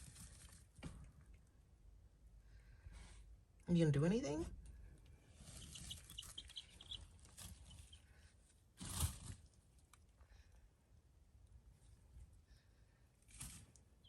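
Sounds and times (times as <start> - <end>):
chicks peeping: 5.4 - 8.1.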